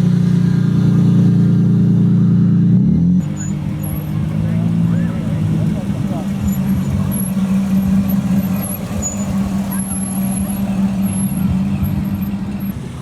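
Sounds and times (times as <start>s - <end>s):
car engine rolling past: 0.0s - 13.0s.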